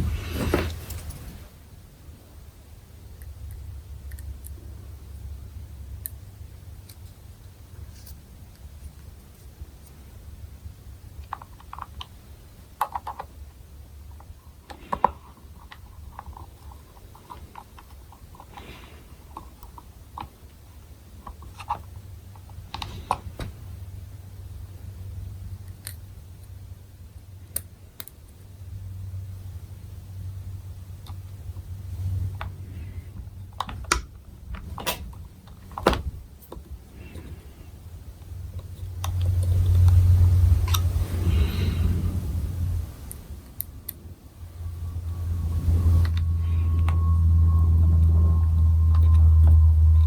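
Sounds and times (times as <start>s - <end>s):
low hum: 28.6s - 50.0s.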